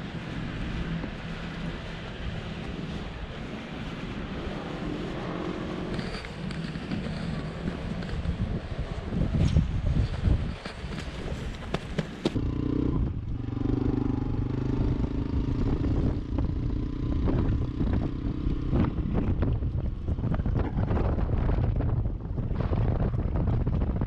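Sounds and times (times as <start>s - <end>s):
wind buffeting microphone: 0.0s - 24.0s
motorcycle engine running: 11.7s - 22.3s.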